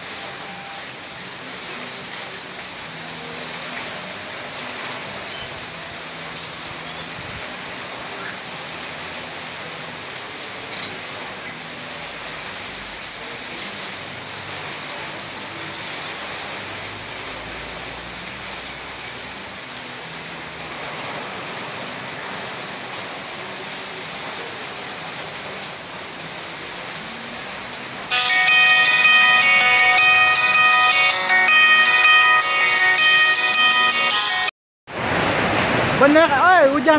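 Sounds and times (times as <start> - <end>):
heavy rain falling: 0.0 - 36.9
loud music: 28.1 - 34.5.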